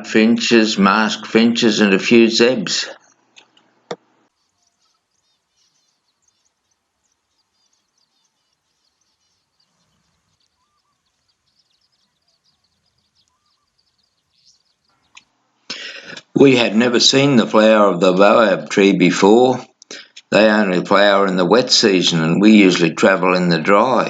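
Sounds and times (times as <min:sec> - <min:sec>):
finches twittering: 0:04.3 - 0:16.2.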